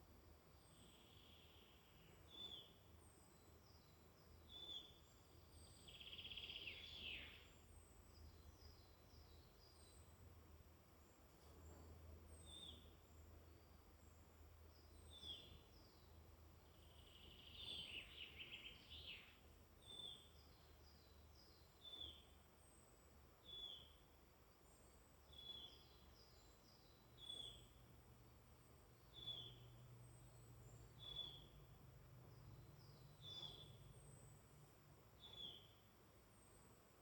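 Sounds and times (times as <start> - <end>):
bird trilled song: 0.6 - 10.1, 11.5 - 13.8, 14.8 - 22.4, 24.7 - 27.8, 29.0 - 31.7, 32.3 - 34.3, 35.2 - 36.5.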